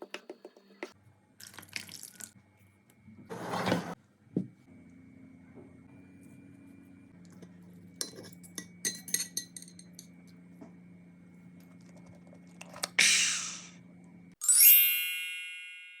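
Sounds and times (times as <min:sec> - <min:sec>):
cutlery and dishes clinking: 0:08.0 - 0:10.0
bright ringing chime: 0:14.4 - 0:16.0.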